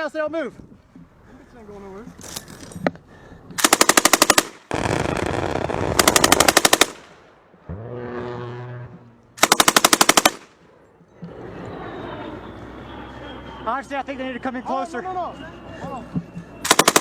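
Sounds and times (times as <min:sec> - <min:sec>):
machine gun bursts: 0:03.6 - 0:07.1, 0:09.4 - 0:10.5, 0:16.7 - 0:17.0.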